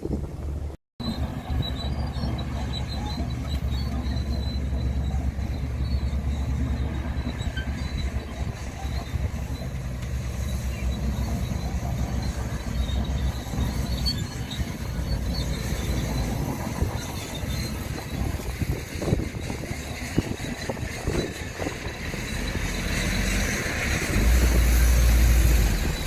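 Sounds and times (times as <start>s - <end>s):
bulldozer diesel engine rumble: 0.0s - 26.0s
faint high squeaks: 1.0s - 21.6s.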